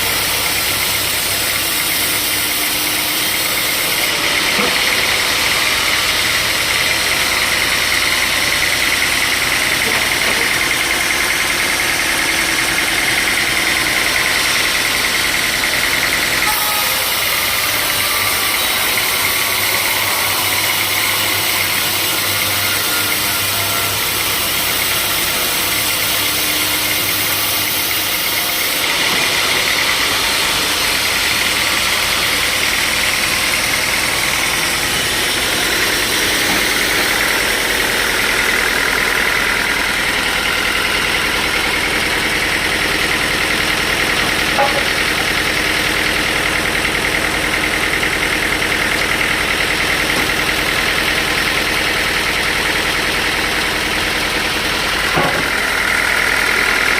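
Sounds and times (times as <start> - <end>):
sawmill machinery running: 0.0 - 56.9.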